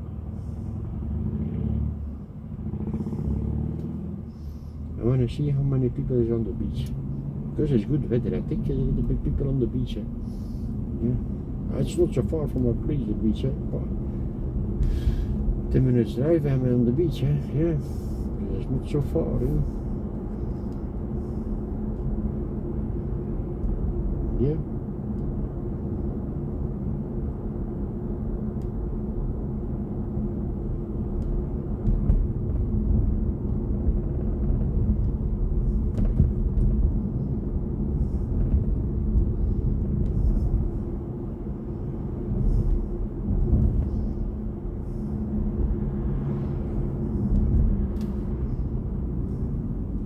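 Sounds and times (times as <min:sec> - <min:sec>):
road and tyre rumble: 0:00.0 - 0:50.0
faint steady hum: 0:34.7 - 0:50.0.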